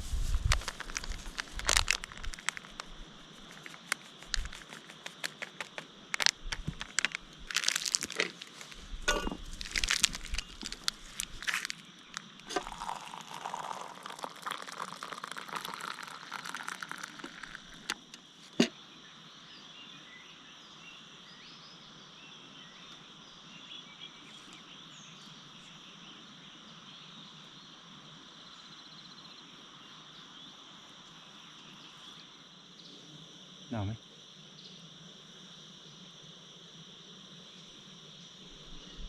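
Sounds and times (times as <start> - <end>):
rustling and crackling: 0.0 - 18.7
crickets chirping: 0.0 - 39.0.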